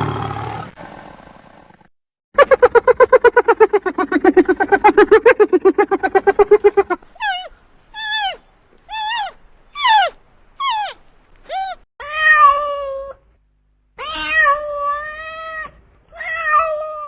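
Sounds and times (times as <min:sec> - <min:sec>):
cat meowing: 0:07.2 - 0:13.1.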